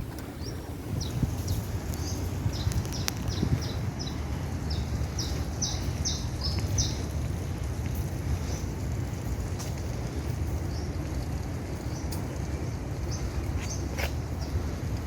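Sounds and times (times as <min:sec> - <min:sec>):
steady low rumble: 0:00.0 - 0:15.0
small bird chirping: 0:00.4 - 0:07.0.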